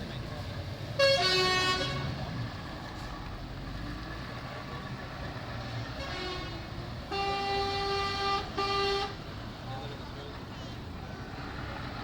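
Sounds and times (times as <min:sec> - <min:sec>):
truck engines running: 0:00.0 - 0:12.0
truck horn blast: 0:01.0 - 0:02.2, 0:06.0 - 0:09.2.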